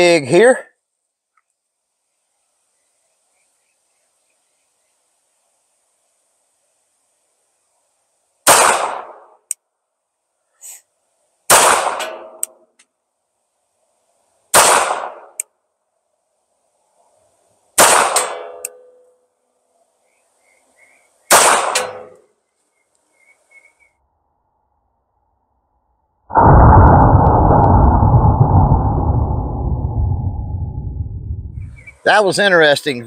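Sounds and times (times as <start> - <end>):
pistol shots: 8.5 - 9.2, 11.5 - 12.2, 14.5 - 15.4, 17.8 - 18.5, 21.3 - 22.1.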